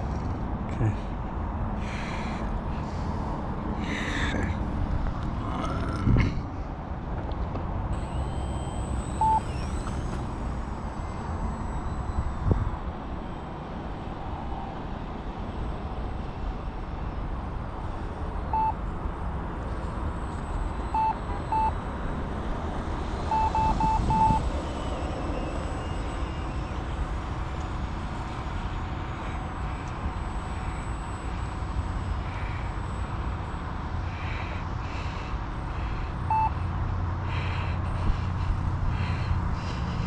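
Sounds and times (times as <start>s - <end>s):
short electronic beeps: 8.0s - 13.5s, 18.5s - 18.8s, 19.9s - 21.8s, 23.3s - 26.9s, 29.7s - 36.7s.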